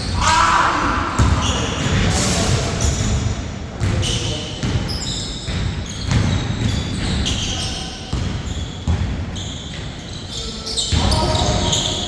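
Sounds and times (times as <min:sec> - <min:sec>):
sneaker squeaks: 0:01.1 - 0:02.2, 0:02.8 - 0:12.0
basketball bouncing: 0:01.2 - 0:01.5, 0:05.5 - 0:07.4, 0:08.1 - 0:09.9.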